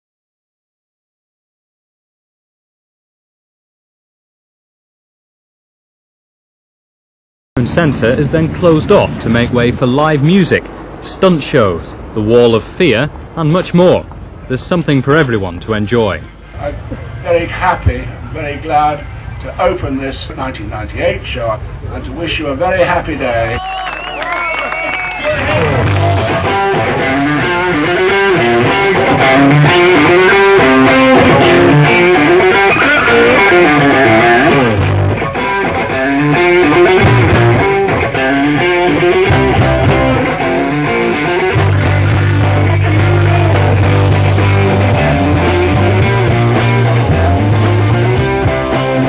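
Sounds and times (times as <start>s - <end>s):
bass guitar: 25.2s - 49.0s
electric guitar lead: 25.2s - 49.0s.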